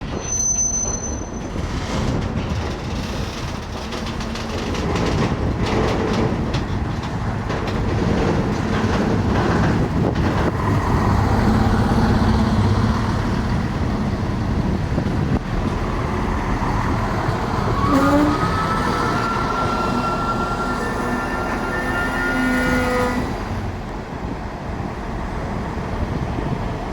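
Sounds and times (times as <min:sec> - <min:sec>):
train rumbling past: 0:00.0 - 0:26.9
wheels clicking over rail joints: 0:01.4 - 0:20.0.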